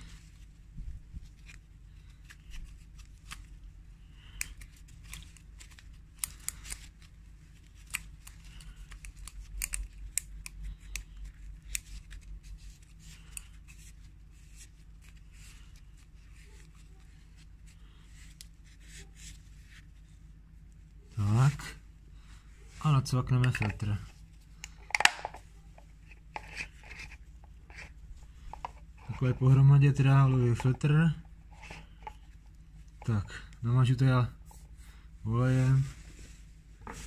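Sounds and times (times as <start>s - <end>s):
snipping: 7.8s - 11.1s.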